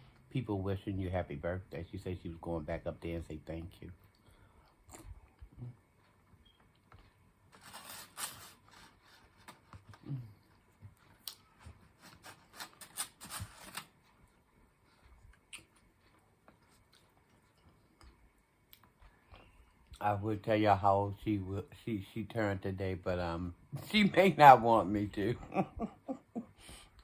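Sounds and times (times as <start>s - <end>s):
rustling and scraping: 6.9s - 15.3s.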